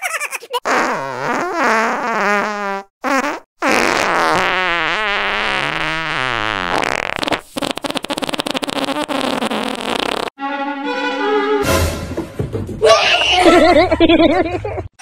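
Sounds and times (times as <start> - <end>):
rubber balloon squeaking: 0.6 - 10.4.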